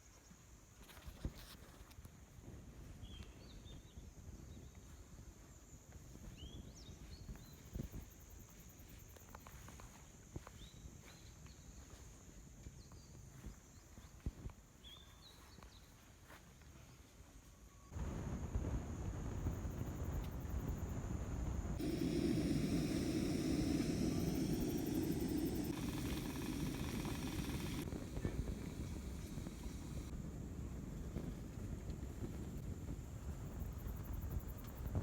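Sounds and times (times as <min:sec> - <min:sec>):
high insect drone: 0:19.2 - 0:30.1
rushing noise: 0:21.8 - 0:30.1.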